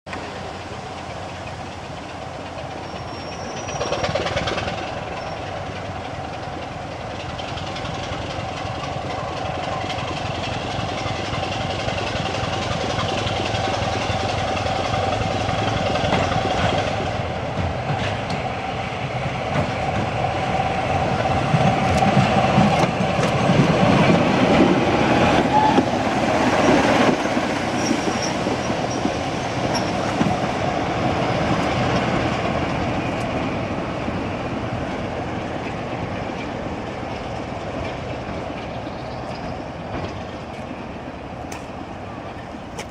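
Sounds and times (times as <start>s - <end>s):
diesel locomotive engine passing: 0.1s - 42.9s.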